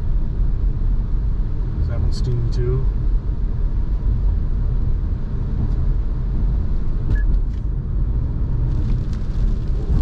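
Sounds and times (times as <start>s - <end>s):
car cabin road rumble: 0.0s - 10.0s
tyres on wet road: 8.5s - 10.0s.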